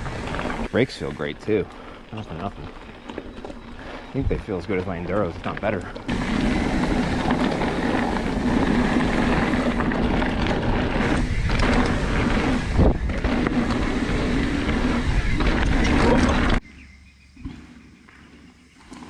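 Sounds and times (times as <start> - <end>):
bike tyre noise on dirt: 0.0 - 19.0
wind rushing over microphone: 4.0 - 16.6.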